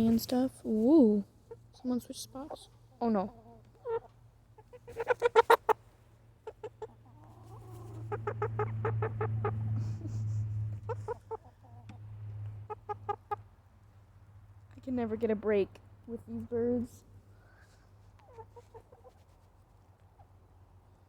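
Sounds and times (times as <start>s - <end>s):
chickens clucking: 1.4s - 13.6s, 18.0s - 20.5s
low hum: 8.0s - 11.2s.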